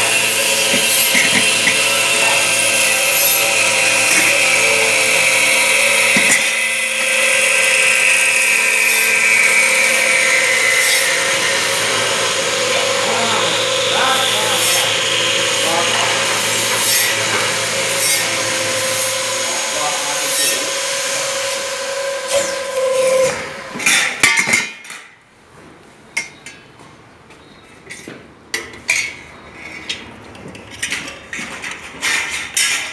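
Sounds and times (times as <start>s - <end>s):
metal-cutting circular saw whining: 0.0s - 24.9s.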